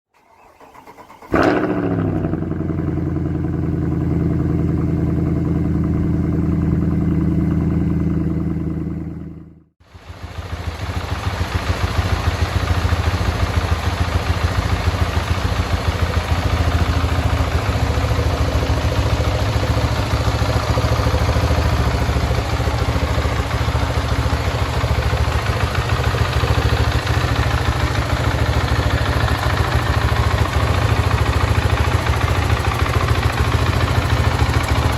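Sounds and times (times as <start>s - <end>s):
motorcycle engine starting and idling: 0.1s - 34.9s.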